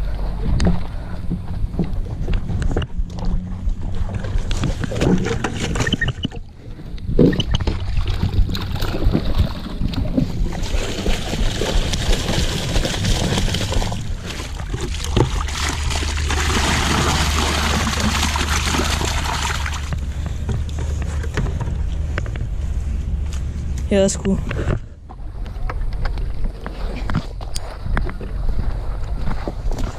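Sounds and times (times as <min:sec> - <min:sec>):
water pouring into a stream: 0:10.5 - 0:20.0.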